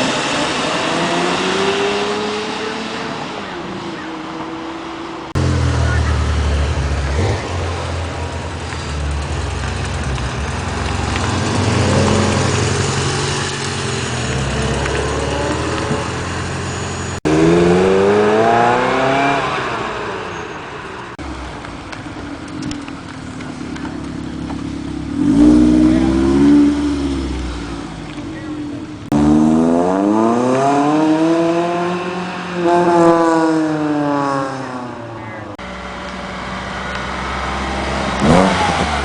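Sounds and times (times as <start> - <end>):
car accelerating hard: 0.0 - 20.5, 23.4 - 39.0
sports car engines idling: 5.4 - 16.7, 20.8 - 26.2, 26.9 - 29.1.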